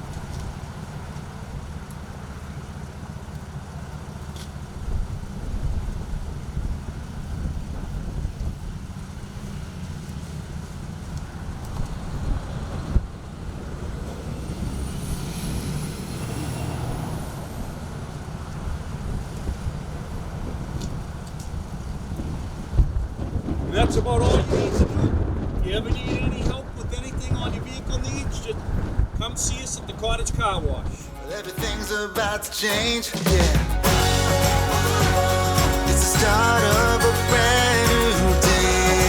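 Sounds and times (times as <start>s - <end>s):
road traffic: 0.0s - 39.0s
wind on microphone: 11.5s - 31.1s
faint high whine: 13.3s - 19.0s.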